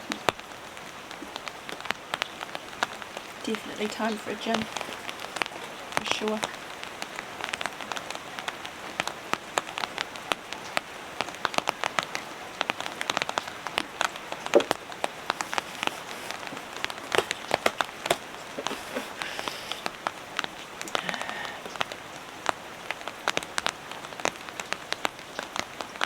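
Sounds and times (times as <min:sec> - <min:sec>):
steady rain: 0:00.0 - 0:26.0
drops striking close by: 0:14.5 - 0:14.8.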